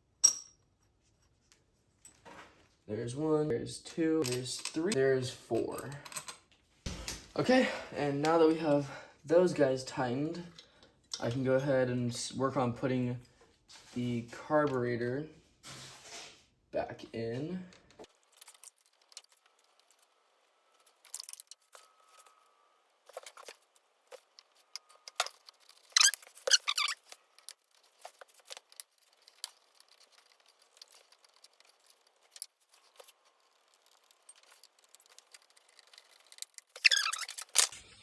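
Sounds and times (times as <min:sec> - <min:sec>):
metal parts clinking: 0:24.4 - 0:37.8.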